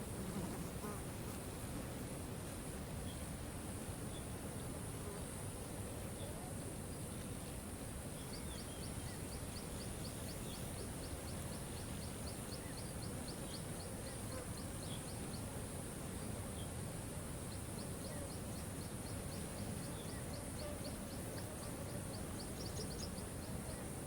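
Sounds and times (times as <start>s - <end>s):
high insect buzz: 0.0s - 3.3s, 4.0s - 24.0s
faint bird chirps: 17.4s - 24.0s.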